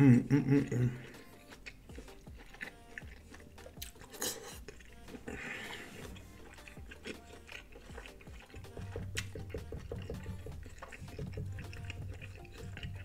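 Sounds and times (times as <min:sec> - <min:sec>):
person chewing with wet mouth sounds: 0:00.2 - 0:13.0
small mouth clicks: 0:01.0 - 0:13.0.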